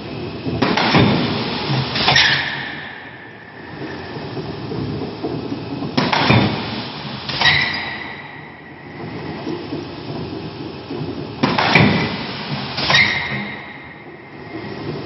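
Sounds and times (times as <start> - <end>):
mechanical rumble: 0.0 - 15.0
forging press metallic clanks: 0.6 - 4.0.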